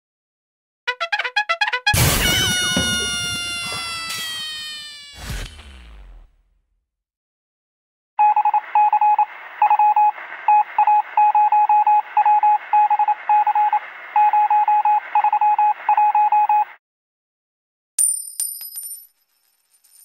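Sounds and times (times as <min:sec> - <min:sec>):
morse code beeps: 0:08.2 - 0:16.7.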